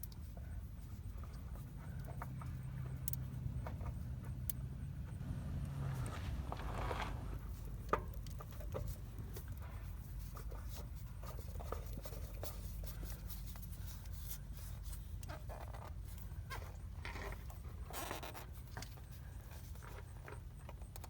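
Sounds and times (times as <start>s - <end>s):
steady low rumble: 0.8s - 8.0s
scraping and clicking of hand work: 1.2s - 21.0s.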